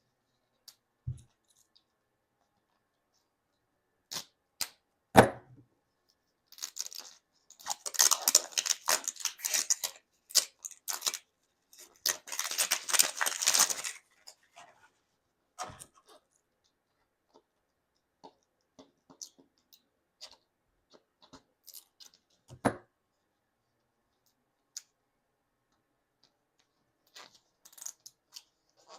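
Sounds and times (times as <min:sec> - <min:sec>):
plastic wrapper crinkling: 0:06.5 - 0:14.3.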